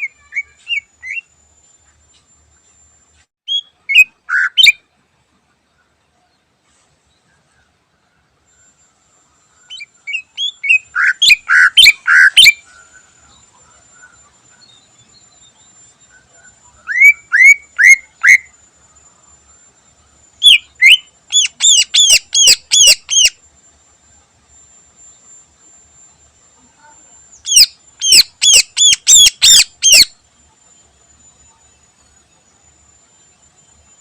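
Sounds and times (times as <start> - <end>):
bird singing whistled notes: 0.0 - 1.3, 3.5 - 4.8, 8.5 - 19.7, 20.4 - 23.4, 27.2 - 34.0
faint high whine: 0.0 - 34.0.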